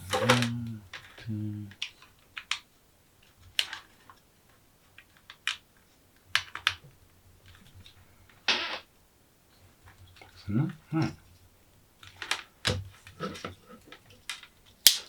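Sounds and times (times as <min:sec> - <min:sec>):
short low hums: 0:00.0 - 0:01.7.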